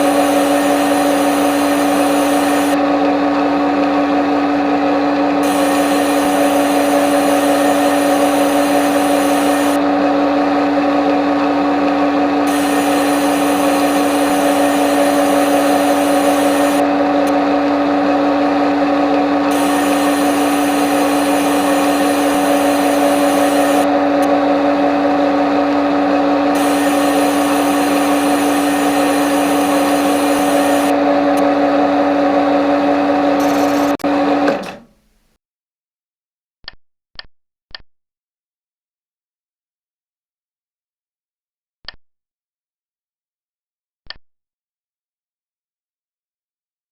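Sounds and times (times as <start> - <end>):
lathe motor hum: 0.0 - 35.2.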